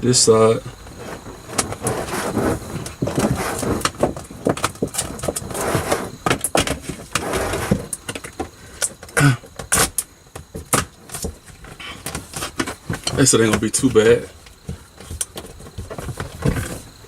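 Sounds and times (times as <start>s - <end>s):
sheet rustling: 0.6s - 8.0s.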